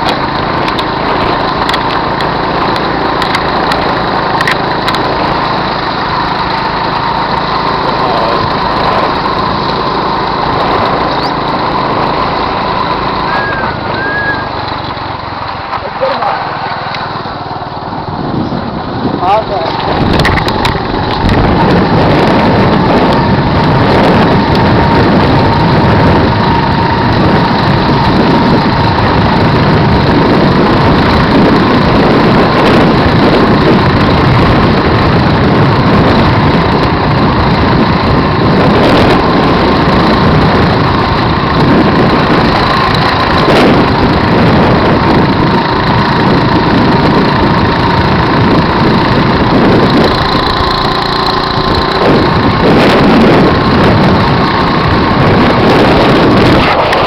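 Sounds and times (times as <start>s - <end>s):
helicopter engine and rotor noise: 0.0s - 57.0s
high steady whine: 0.0s - 57.0s.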